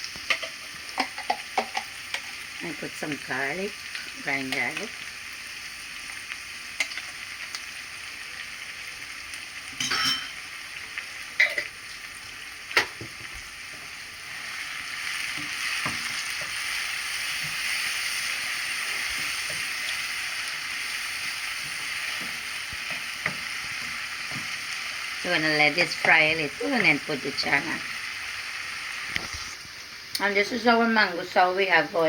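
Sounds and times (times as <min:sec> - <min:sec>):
onions sizzling in oil: 0:00.0 - 0:32.0
stirring in a pan: 0:09.7 - 0:27.5.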